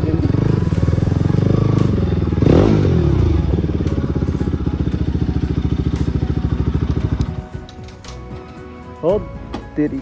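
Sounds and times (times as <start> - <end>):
motorcycle engine idling: 0.0 - 7.7.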